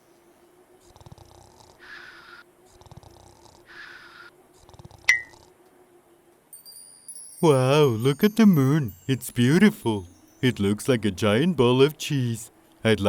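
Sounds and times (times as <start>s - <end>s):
cartoon snoring: 0.8s - 5.5s.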